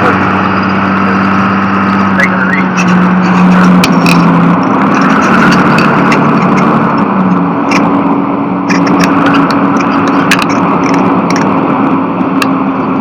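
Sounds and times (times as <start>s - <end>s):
vehicle engine and road drone: 0.0s - 13.0s
sharp clicks: 8.7s - 11.6s.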